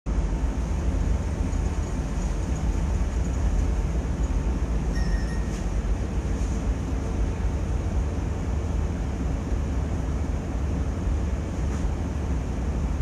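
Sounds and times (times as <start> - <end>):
thin high tone: 4.9 - 5.7.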